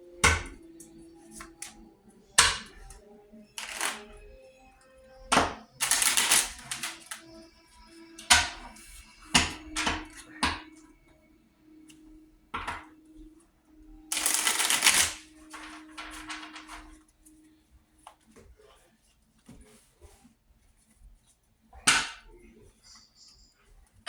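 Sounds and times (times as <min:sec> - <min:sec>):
playing cards rustling: 0:03.6 - 0:04.1, 0:05.7 - 0:07.4, 0:14.1 - 0:18.8.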